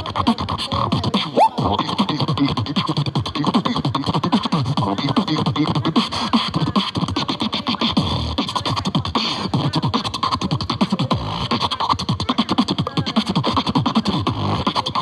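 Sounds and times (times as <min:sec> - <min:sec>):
beatboxing percussive clicks: 0:00.0 - 0:15.0.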